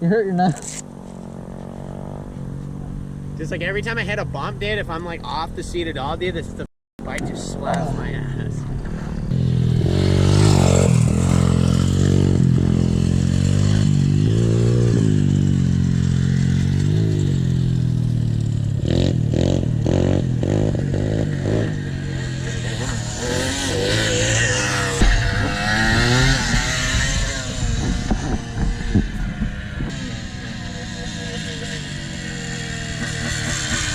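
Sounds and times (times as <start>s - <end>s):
pit bike engine revving: 0.5s - 33.9s
sharp knocks: 24.8s - 27.2s
thump: 24.9s - 25.7s.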